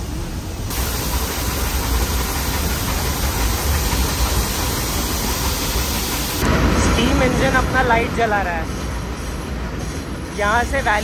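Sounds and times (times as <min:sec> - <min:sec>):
moving train rumble: 0:00.0 - 0:11.0
steady hiss: 0:00.2 - 0:06.4.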